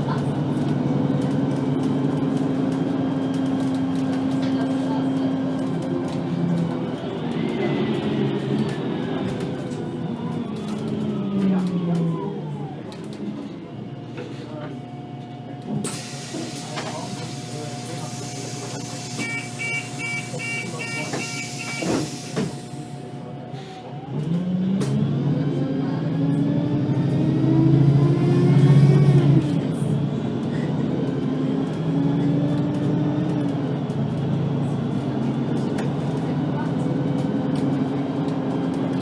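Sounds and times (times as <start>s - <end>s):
bus engine accelerating: 0.0s - 39.0s
bus door warning beeps: 19.2s - 22.4s.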